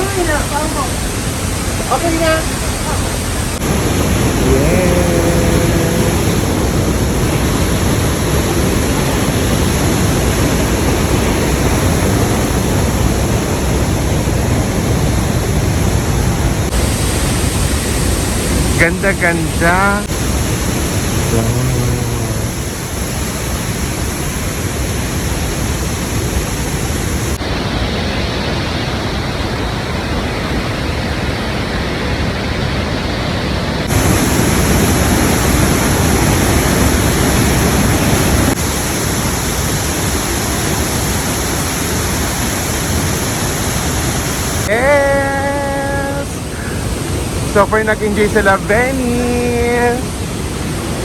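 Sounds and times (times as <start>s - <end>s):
people talking: 0.0s - 1.1s, 1.8s - 3.6s, 4.4s - 6.7s, 18.7s - 20.2s, 21.3s - 22.6s, 44.7s - 46.8s, 47.5s - 50.1s
waterfall rushing: 0.0s - 51.0s.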